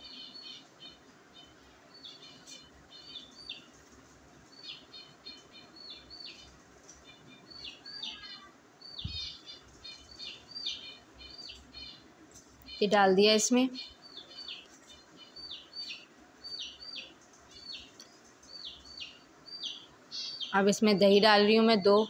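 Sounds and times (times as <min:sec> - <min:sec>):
small birds chirping: 0:00.0 - 0:22.0
soft low thump: 0:09.0 - 0:09.3.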